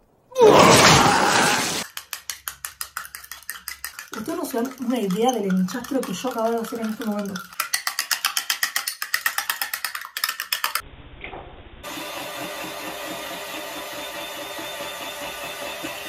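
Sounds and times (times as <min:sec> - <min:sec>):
utensil clinking against bowl: 0:02.0 - 0:10.8.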